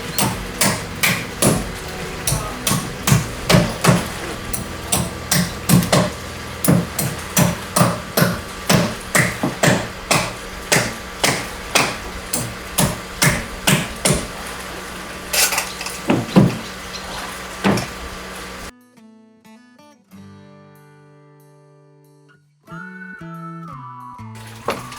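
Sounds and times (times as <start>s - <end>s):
hammer blows: 0.0s - 18.7s.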